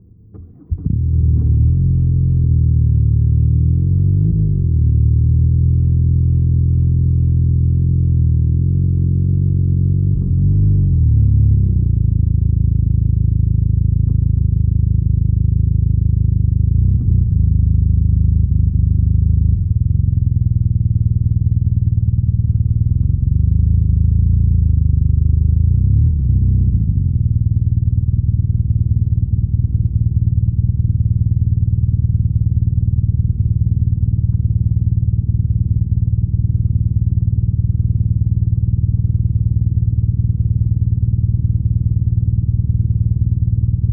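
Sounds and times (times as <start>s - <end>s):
motorcycle engine and exhaust: 0.0s - 43.9s.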